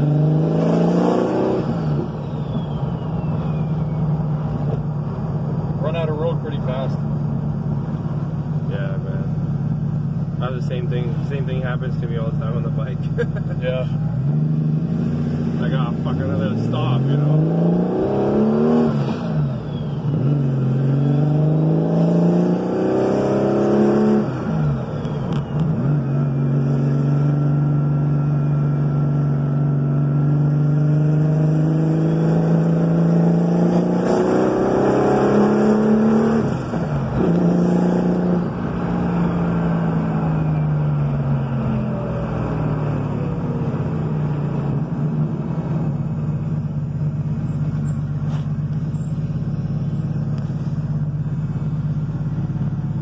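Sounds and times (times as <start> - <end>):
car engine revving through gears: 0.0 - 2.7, 14.1 - 46.6.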